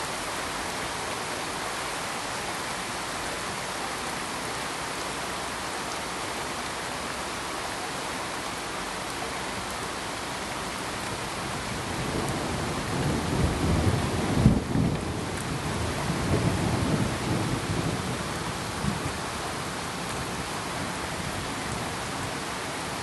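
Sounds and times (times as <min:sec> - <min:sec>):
rain hiss: 0:00.0 - 0:23.0
thunder rumbling: 0:11.8 - 0:19.2.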